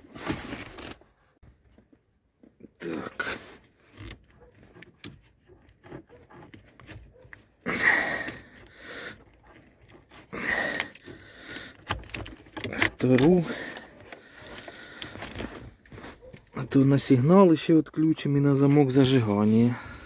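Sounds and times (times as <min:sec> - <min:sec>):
loud noisy handling sounds: 0:09.2 - 0:16.8.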